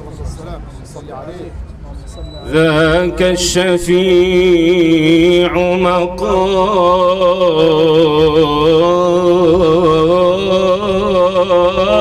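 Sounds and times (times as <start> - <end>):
man chanting melismatic melody: 2.2 - 12.0
steady low drone: 2.9 - 12.0.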